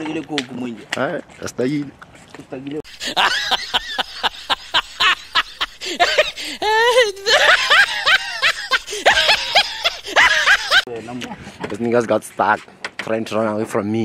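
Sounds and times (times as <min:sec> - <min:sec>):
person laughing hard: 0:02.9 - 0:10.9.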